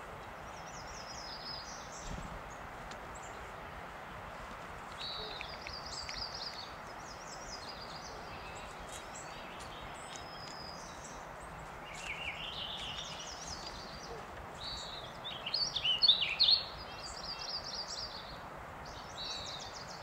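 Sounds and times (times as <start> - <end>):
outdoor background noise: 0.0 - 20.0
songbird trilling: 11.9 - 18.1.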